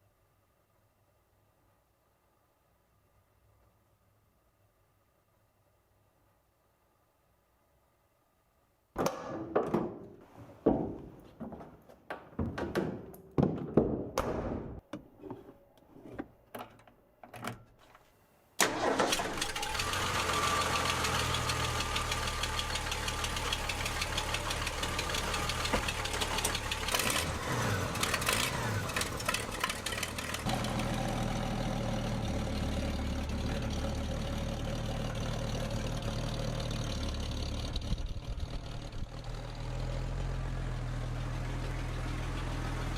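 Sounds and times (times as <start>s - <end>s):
knocks and clunks: 9.0s - 15.5s
truck engine starting and idling: 18.6s - 42.9s.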